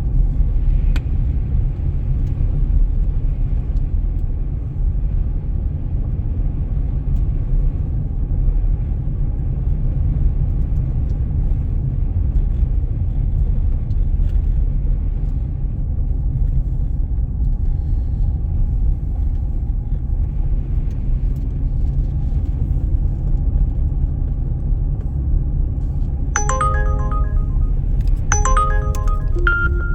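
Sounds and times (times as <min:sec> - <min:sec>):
pitched musical notes: 0:26.4 - 0:29.9.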